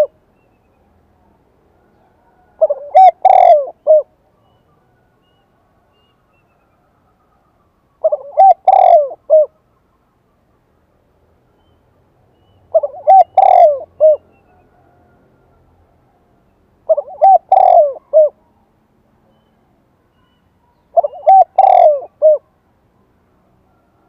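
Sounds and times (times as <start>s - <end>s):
dove cooing: 1.9s - 4.2s, 8.0s - 9.6s, 12.7s - 15.1s, 16.8s - 18.5s, 20.9s - 22.5s.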